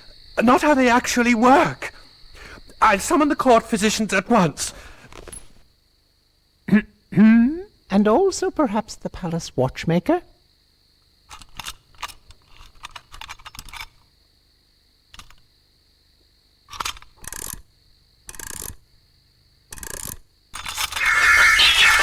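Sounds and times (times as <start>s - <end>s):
small metallic clinks and rattles: 11.3s - 14.0s.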